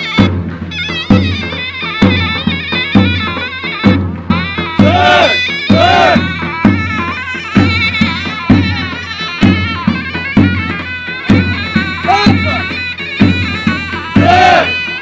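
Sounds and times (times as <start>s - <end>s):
shrill reedy zurna melody: 0.0s - 15.0s
bass drum beating heavily: 3.9s - 10.7s.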